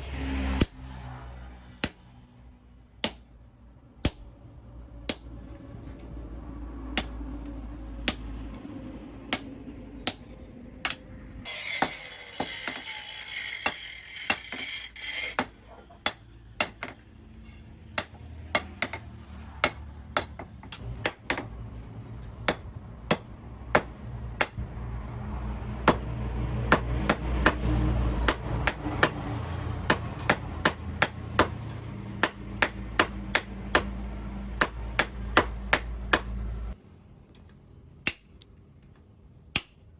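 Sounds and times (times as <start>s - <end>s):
hammer striking steel on anvil: 4.0s - 4.3s, 5.0s - 5.3s, 9.3s - 17.0s.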